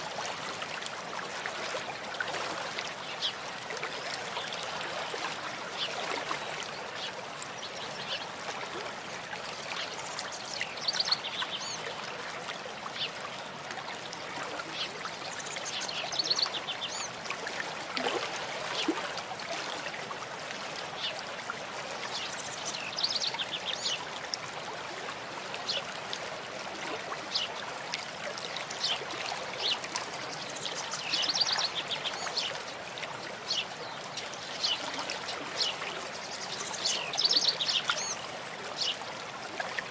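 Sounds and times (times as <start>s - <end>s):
stream running: 0.0s - 39.9s.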